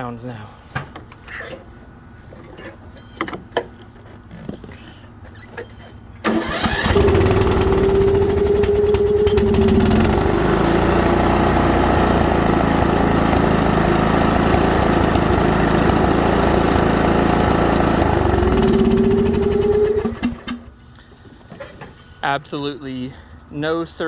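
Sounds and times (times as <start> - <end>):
mower engine running: 6.3 - 20.7.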